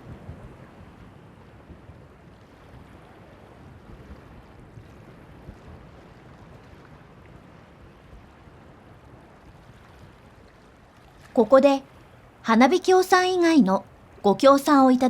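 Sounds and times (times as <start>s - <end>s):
wind on microphone: 0.0s - 10.2s.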